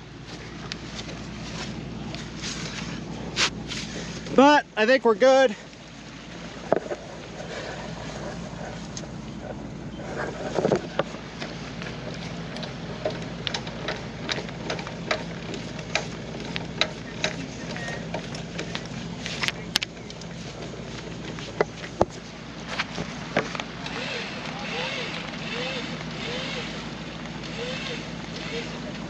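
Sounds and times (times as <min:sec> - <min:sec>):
truck engine idling: 0:00.0 - 0:29.0
clatter: 0:06.6 - 0:29.0
sharp clicks and knocks: 0:08.2 - 0:29.0.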